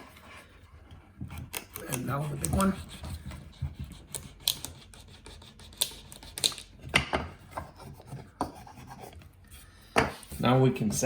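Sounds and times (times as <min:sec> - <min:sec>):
knife scraping wood: 0:00.0 - 0:06.7.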